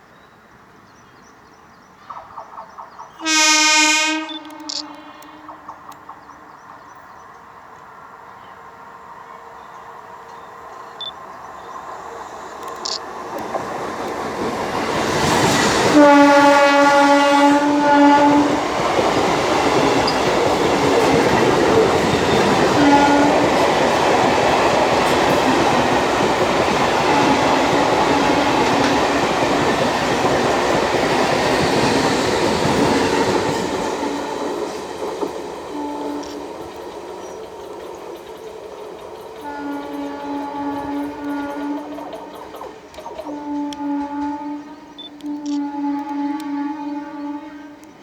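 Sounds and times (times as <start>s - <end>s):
train track noise: 0.0s - 48.0s
train horn: 3.2s - 5.9s, 15.4s - 34.8s, 35.5s - 37.4s, 39.3s - 42.4s, 43.2s - 48.0s.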